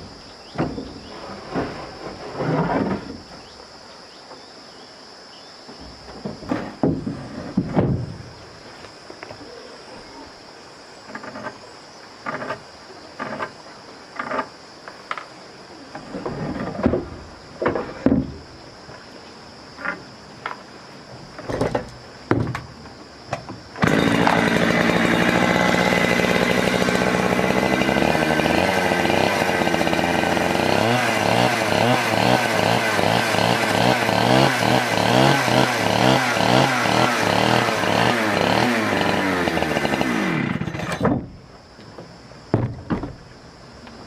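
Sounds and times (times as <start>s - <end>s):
knocks and scrapes: 0.6s - 3.5s, 5.7s - 8.3s, 11.0s - 14.6s, 15.9s - 18.5s, 21.2s - 22.7s
chainsaw running: 23.8s - 41.1s.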